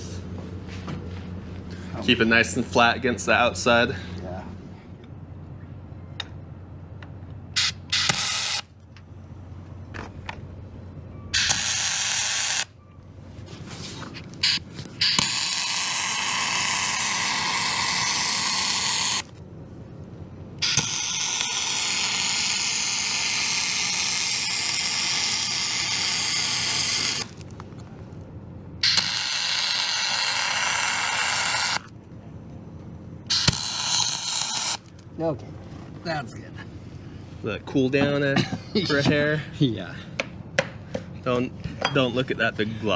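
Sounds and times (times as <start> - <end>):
welding arc crackling hiss: 11.4 - 12.7, 14.4 - 19.3, 20.6 - 27.4, 28.8 - 31.9, 33.3 - 34.9.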